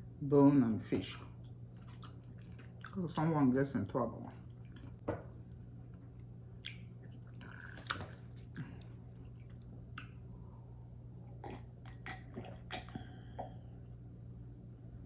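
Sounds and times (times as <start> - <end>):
low steady hum: 0.0 - 15.0
chewing and wet mouth smacks: 1.4 - 3.0, 4.4 - 10.3, 11.3 - 13.6.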